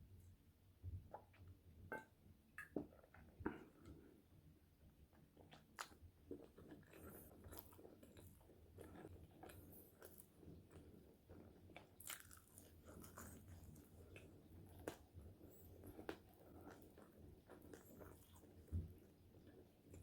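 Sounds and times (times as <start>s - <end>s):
chewing crispy fries: 5.4s - 20.0s.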